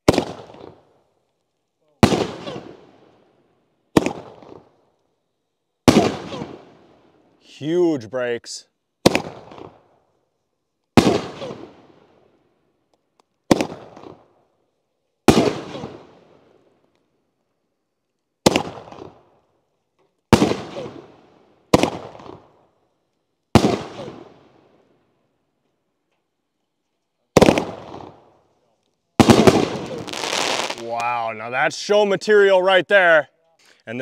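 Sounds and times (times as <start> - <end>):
firework booms: 0.0 - 0.8, 2.0 - 3.2, 3.9 - 4.7, 5.8 - 7.2, 9.0 - 9.9, 11.0 - 12.3, 13.5 - 14.3, 15.2 - 16.6, 18.4 - 19.3, 20.3 - 22.6, 23.5 - 24.8, 27.4 - 28.3, 29.2 - 30.8.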